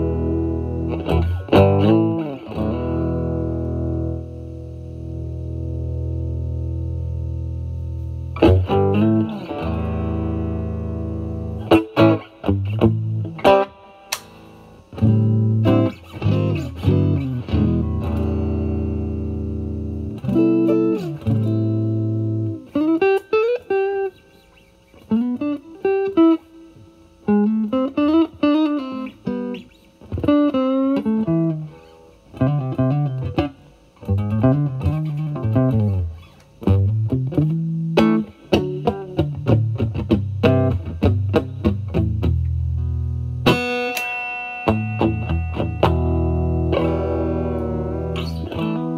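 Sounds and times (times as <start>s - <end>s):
overdriven electric guitar: 0.0s - 48.9s.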